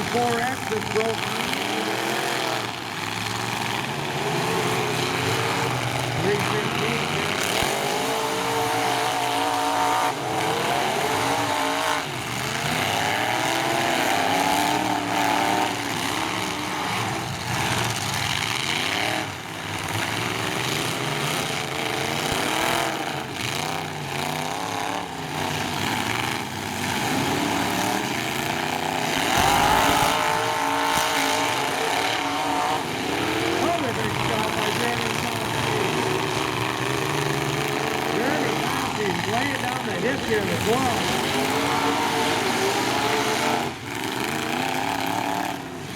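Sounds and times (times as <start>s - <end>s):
truck engines revving: 0.0s - 45.9s.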